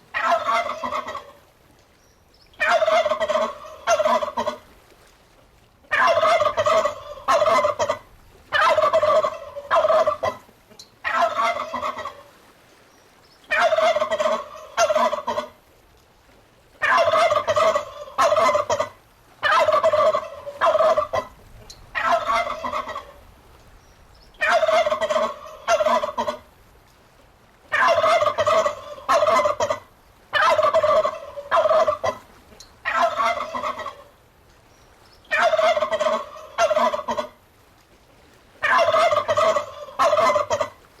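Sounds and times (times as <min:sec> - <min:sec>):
turkey gobbling: 0:00.2 - 0:01.4, 0:02.6 - 0:04.6, 0:05.8 - 0:12.2, 0:13.5 - 0:15.6, 0:16.8 - 0:23.2, 0:24.4 - 0:26.4, 0:27.7 - 0:34.1, 0:35.3 - 0:37.4, 0:38.6 - 0:40.8.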